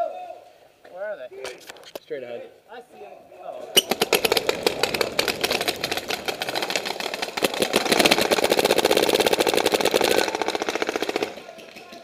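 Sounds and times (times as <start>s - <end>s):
paintball marker rapid pops: 3.8s - 12.0s.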